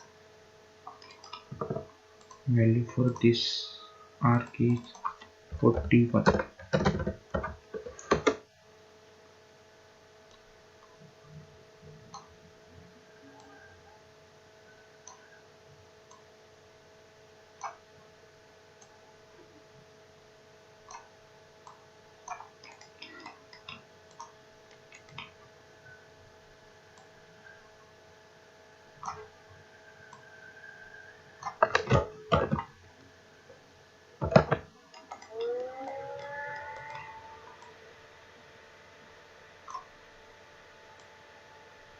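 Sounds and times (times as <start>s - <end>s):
low electrical hum: 0.0s - 41.9s
computer mouse clicks: 0.9s - 2.5s, 4.4s - 8.4s, 15.0s - 15.3s, 16.0s - 16.3s, 17.6s - 17.8s, 20.8s - 25.4s, 29.0s - 29.3s, 31.4s - 32.7s, 34.2s - 37.8s, 39.6s - 39.9s
person speaking: 1.6s - 8.3s, 31.6s - 32.7s.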